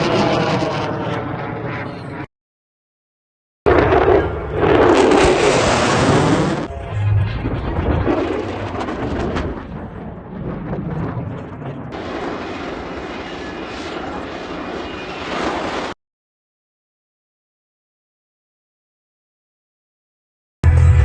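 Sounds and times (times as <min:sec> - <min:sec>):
jet engines rushing: 0:00.0 - 0:02.3, 0:03.7 - 0:16.0.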